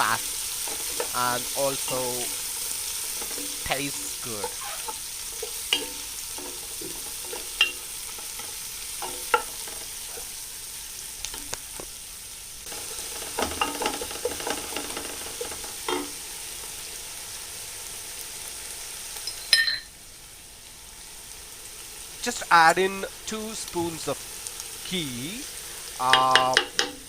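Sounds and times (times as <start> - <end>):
spoon scraping and knocking pan: 0.0 - 10.4, 12.7 - 16.2, 26.1 - 27.0
onions sizzling in hot oil: 0.0 - 27.0.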